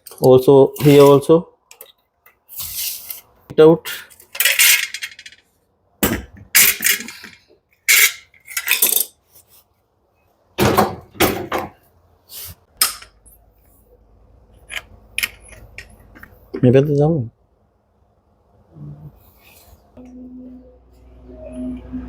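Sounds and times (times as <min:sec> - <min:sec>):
metal parts and tools clinking: 0:03.9 - 0:05.5, 0:06.6 - 0:09.2, 0:14.6 - 0:16.3.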